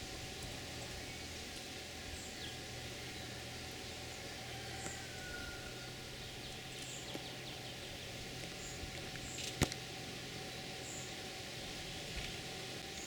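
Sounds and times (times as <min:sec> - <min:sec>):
small birds chirping: 0:00.0 - 0:13.0
steady background hiss: 0:00.0 - 0:13.0.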